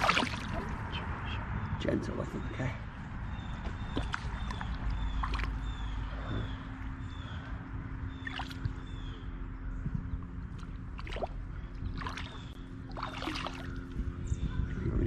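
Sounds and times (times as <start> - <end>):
small splashes and knocks: 0.0 - 0.7, 3.8 - 5.6, 8.2 - 8.8, 10.6 - 13.8
stream water running: 0.0 - 0.9, 3.8 - 6.1, 8.2 - 8.9, 10.6 - 13.9
steady low rumble: 0.0 - 15.0.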